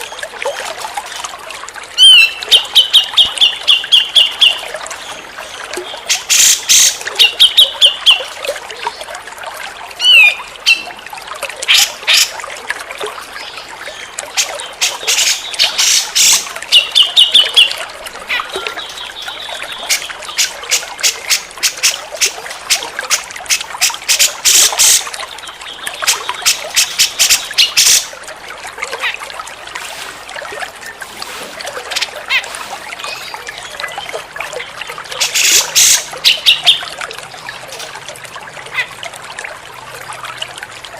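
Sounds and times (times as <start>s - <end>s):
water trickling: 0.0s - 40.9s
bulbul calling: 2.0s - 4.6s, 10.0s - 10.9s, 35.2s - 36.9s.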